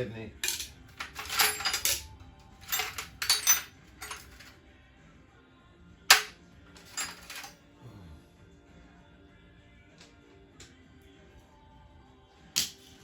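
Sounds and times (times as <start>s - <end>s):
hard objects clattering: 0.4s - 4.6s, 6.1s - 7.6s.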